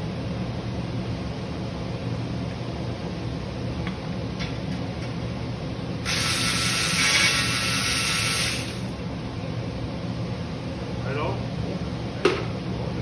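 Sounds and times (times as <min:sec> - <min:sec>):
loud pressurized hiss: 0:06.1 - 0:08.9.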